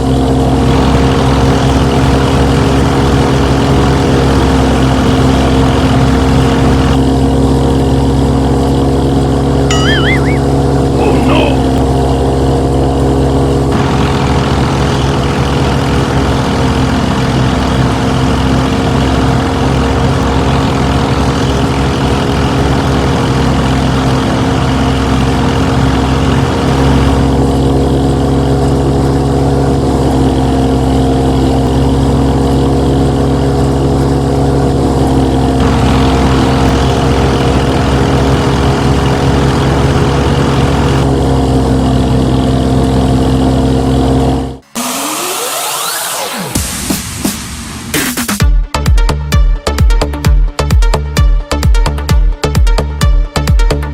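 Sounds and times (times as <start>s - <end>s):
motor droning: 34.9s - 42.1s.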